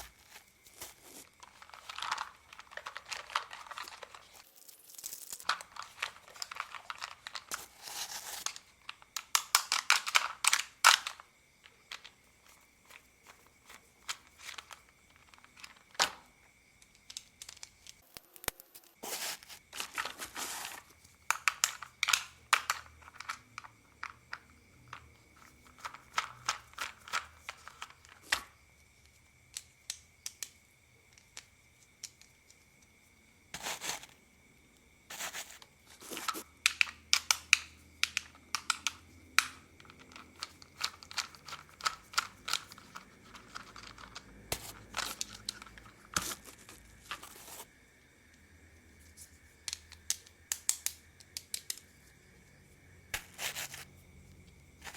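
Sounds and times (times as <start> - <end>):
crinkly plastic rustling: 0.0 - 11.2, 19.0 - 23.4, 39.8 - 47.7
plastic parts clicking and tapping: 0.0 - 18.9, 19.7 - 32.6, 35.1 - 47.7, 49.6 - 51.9
plastic parts rattling: 0.0 - 32.3, 35.1 - 47.7.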